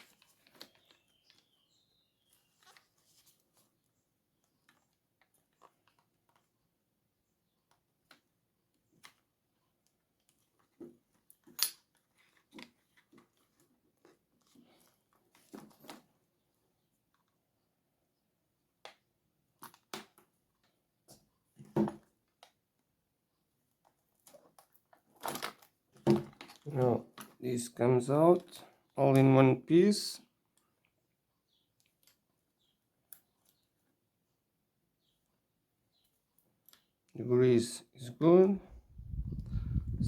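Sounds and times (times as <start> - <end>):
small parts and tool clicking: 9.0 - 13.2.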